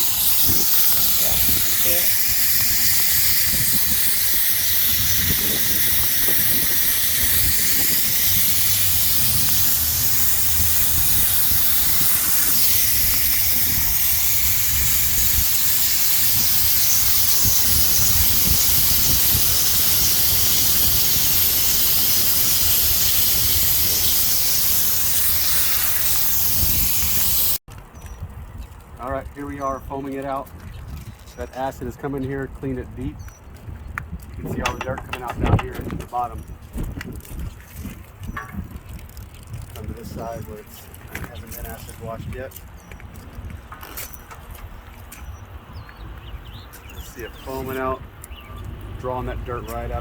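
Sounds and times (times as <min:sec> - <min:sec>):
sprayer hissing: 0:00.0 - 0:27.6.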